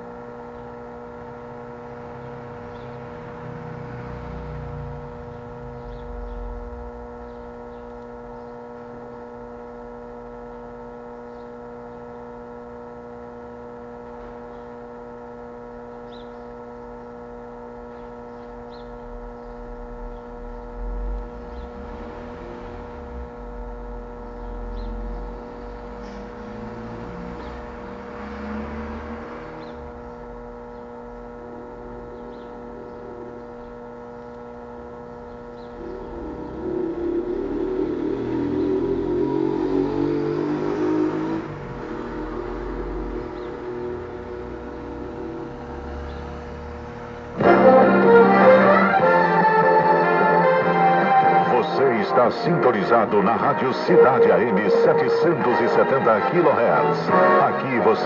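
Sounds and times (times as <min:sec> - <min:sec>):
steady electrical hum: 0:00.0 - 0:58.0
low rumbles: 0:04.9 - 0:08.8, 0:17.5 - 0:28.2, 0:29.2 - 0:47.5.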